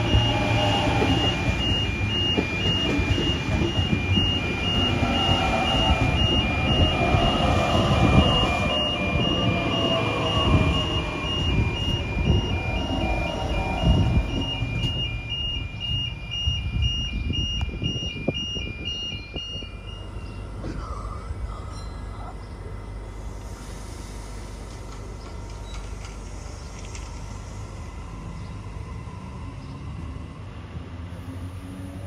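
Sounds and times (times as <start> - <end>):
electric train running: 0.0 - 18.4
two-tone crossing alarm: 0.0 - 20.6.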